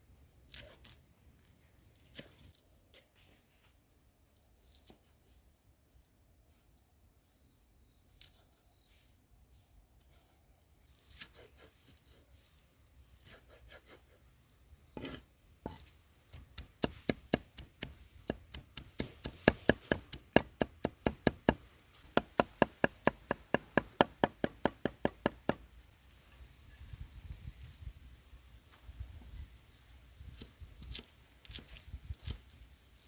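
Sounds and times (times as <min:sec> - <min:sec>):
knife chopping on board: 0:16.6 - 0:25.6.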